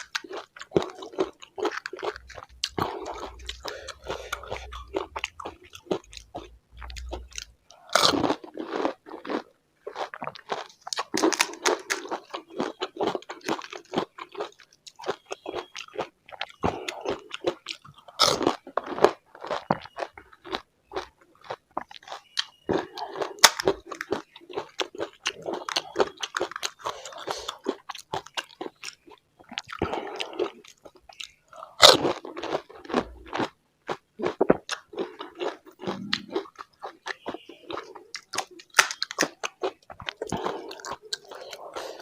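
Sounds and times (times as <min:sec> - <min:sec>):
chewing: 0:00.0 - 0:42.0
crisp shells crunching: 0:08.0 - 0:14.5.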